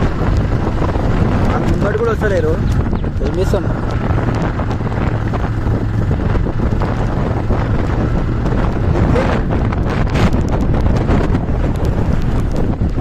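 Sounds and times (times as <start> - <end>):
motorbike running: 0.0 - 13.0
road noise: 0.0 - 13.0
wind buffeting microphone: 0.0 - 13.0.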